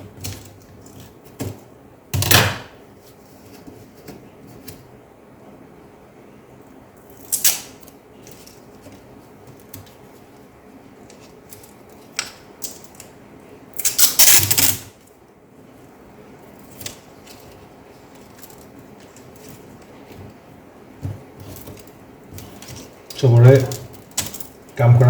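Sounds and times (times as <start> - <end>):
laptop parts clicking and rattling: 21.4 - 24.7.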